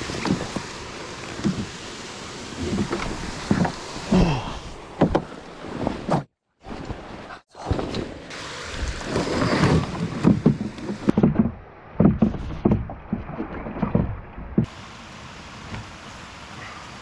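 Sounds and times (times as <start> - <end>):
paddle strokes and splashes: 0.0 - 14.8
steady water rush: 0.0 - 17.0
knocks against canoe hull: 2.6 - 3.8, 5.0 - 6.2, 9.5 - 14.7.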